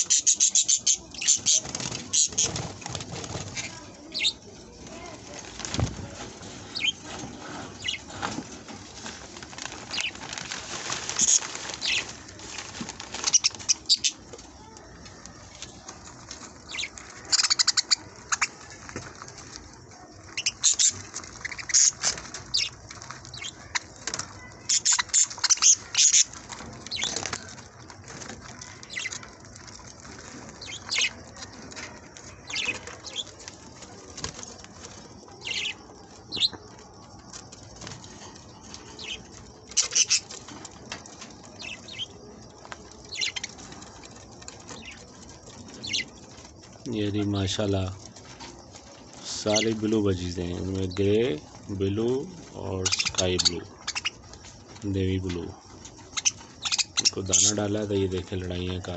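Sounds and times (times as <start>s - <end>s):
budgerigars chirping: 0.0s - 2.7s, 6.7s - 7.1s, 7.8s - 8.2s, 11.1s - 12.1s, 13.2s - 14.2s, 16.6s - 18.6s, 20.3s - 23.9s, 24.6s - 27.5s, 30.5s - 31.2s, 35.4s - 36.6s, 39.0s - 40.4s, 41.6s - 42.2s, 43.1s - 43.6s, 44.7s - 46.3s, 49.3s - 51.3s, 52.0s - 55.4s, 56.0s - 58.2s
wings fluttering: 0.0s - 58.9s.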